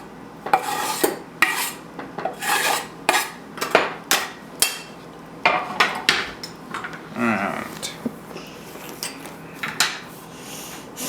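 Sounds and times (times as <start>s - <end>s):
utensil scraping against a bowl: 0.5s - 3.4s.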